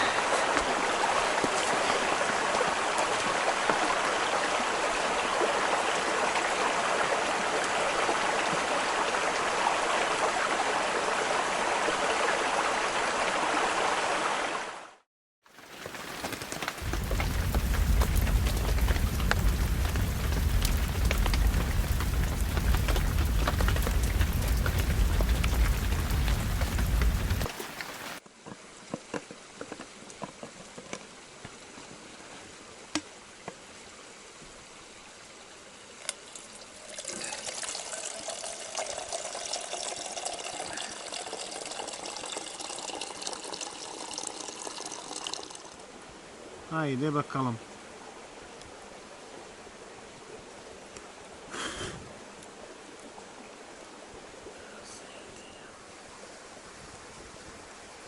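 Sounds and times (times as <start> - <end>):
water rushing loudly: 0.0 - 15.0, 15.6 - 28.2
water being poured: 36.2 - 45.9.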